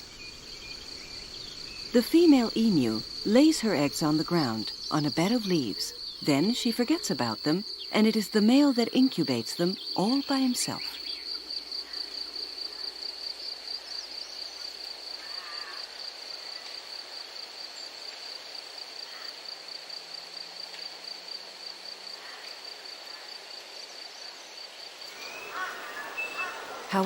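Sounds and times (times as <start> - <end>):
insect trilling: 0.0 - 17.9, 25.0 - 27.0
soft bird chirps: 25.1 - 27.0.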